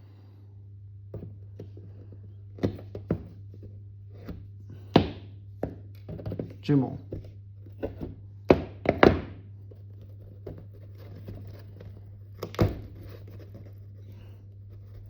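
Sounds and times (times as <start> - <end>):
low steady hum: 0.0 - 15.0
hand tool knocking on wood: 7.1 - 9.4.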